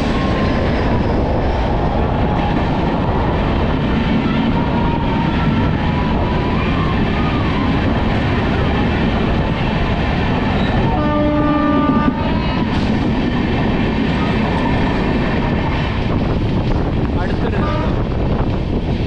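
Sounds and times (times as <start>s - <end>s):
train wheels rumbling on rails: 0.0s - 19.0s
train horn: 10.8s - 12.6s, 17.5s - 18.0s.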